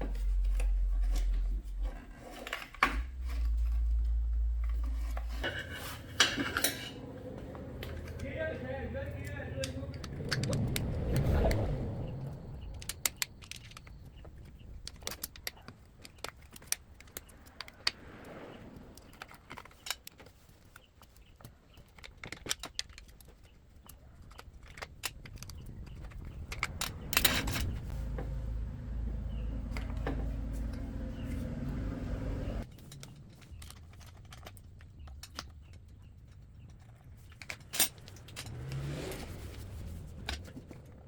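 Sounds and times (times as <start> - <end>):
low hum: 0.0 - 14.7
metal rattle: 21.9 - 28.0, 32.7 - 41.0
metal tools clinking: 32.7 - 39.4.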